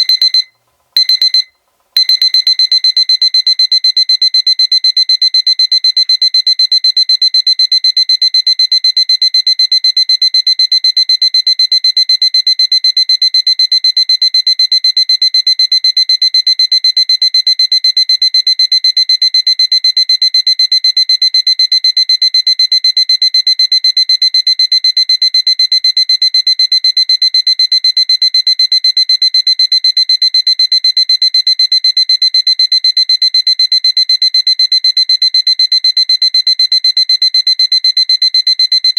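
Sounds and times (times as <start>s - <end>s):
alarm clock beeping: 0.0s - 4.0s.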